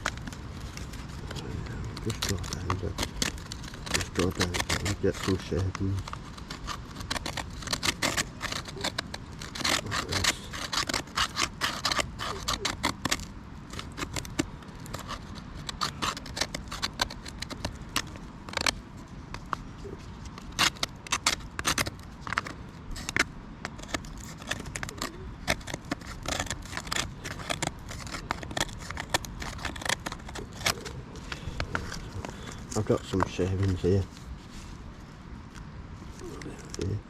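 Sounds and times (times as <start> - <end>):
knife scraping wood: 0.0 - 37.0.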